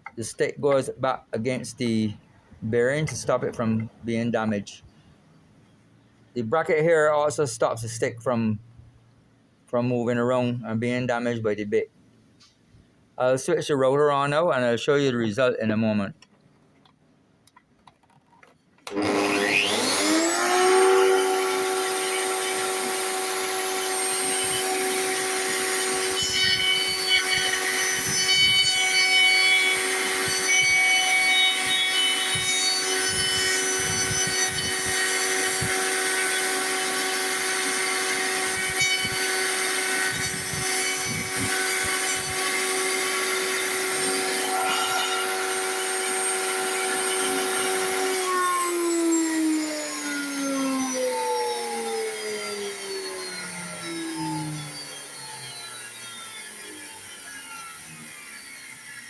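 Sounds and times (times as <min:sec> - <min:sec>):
router bit cutting wood: 0:18.8 - 0:59.0
router motor whine: 0:18.8 - 0:59.0.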